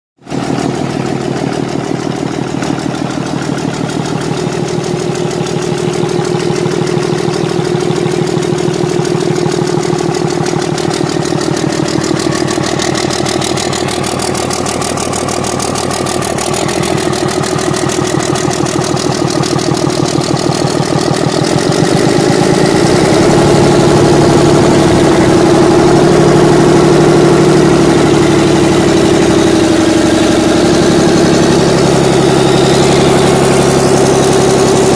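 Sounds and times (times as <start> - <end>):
six-cylinder engine running: 0.2 - 34.9.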